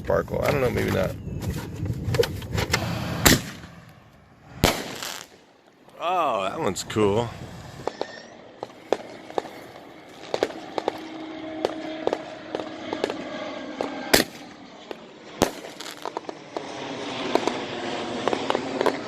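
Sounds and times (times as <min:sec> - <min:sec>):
fireworks crackling pops: 0:00.8 - 0:04.0, 0:04.6 - 0:05.5, 0:07.8 - 0:13.2, 0:13.8 - 0:17.6, 0:18.2 - 0:19.0
fireworks loud bangs: 0:02.7 - 0:03.9, 0:04.5 - 0:05.5, 0:07.7 - 0:13.2, 0:14.1 - 0:14.5, 0:15.4 - 0:16.4.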